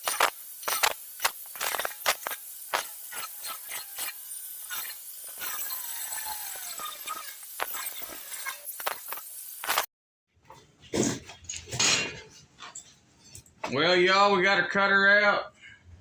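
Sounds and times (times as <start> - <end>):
saw cutting steel hiss: 0.0 - 9.9.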